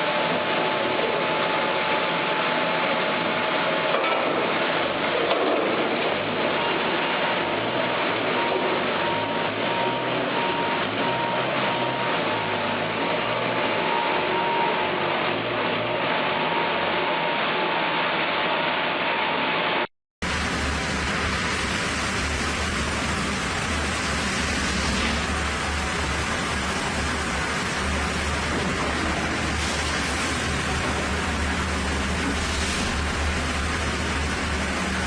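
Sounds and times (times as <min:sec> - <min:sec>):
sawmill machinery din: 0:00.0 - 0:19.5, 0:20.2 - 0:35.0
machine deep hum: 0:20.2 - 0:35.0.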